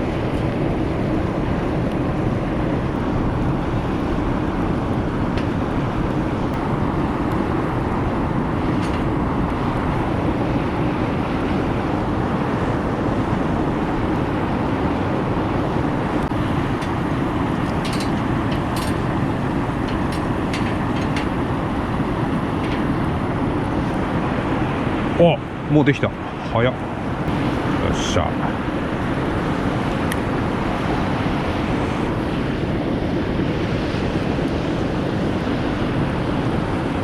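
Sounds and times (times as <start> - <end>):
fire crackles: 0.0 - 15.0, 15.6 - 25.2
wood fire rushing: 0.0 - 26.0.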